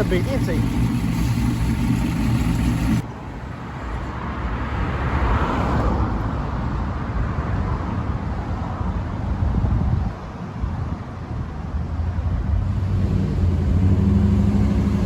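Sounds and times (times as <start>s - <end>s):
car engine idling: 0.0s - 4.0s
car passing rumble: 0.0s - 8.8s.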